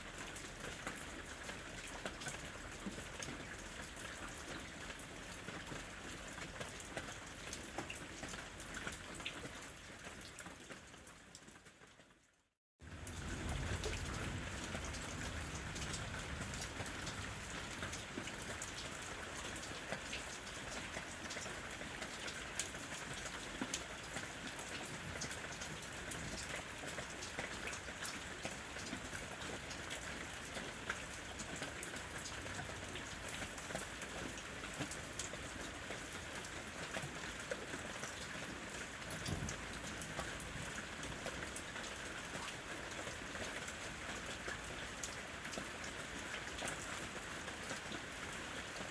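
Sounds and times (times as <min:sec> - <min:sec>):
rain on a roof: 0:00.0 - 0:48.9
raindrops ticking: 0:12.8 - 0:48.0.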